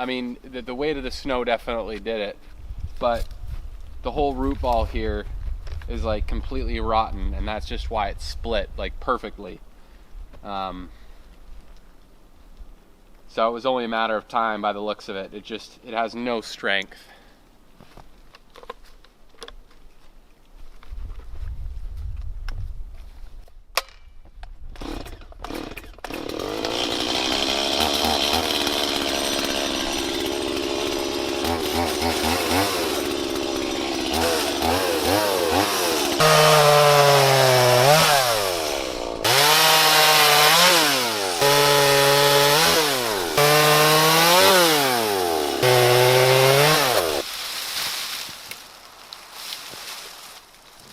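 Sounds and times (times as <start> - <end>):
chainsaw cutting wood: 24.8 - 47.3.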